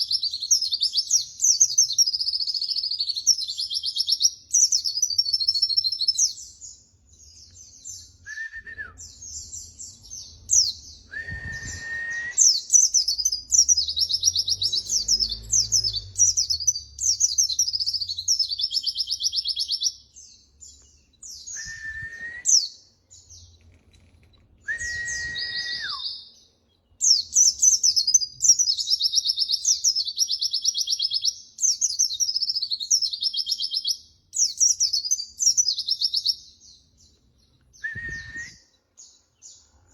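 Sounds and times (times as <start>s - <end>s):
bird twittering: 7.4s - 26.3s
lower whistled notes: 11.1s - 12.6s, 21.4s - 22.6s, 24.6s - 26.2s, 37.8s - 38.7s.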